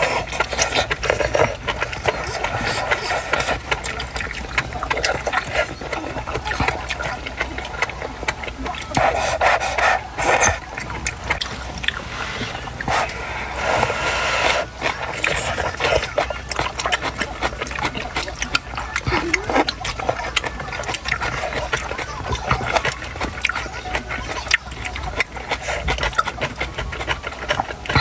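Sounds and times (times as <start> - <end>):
person slurping: 0.0 - 24.1, 24.8 - 28.0
person chewing food: 0.0 - 28.0.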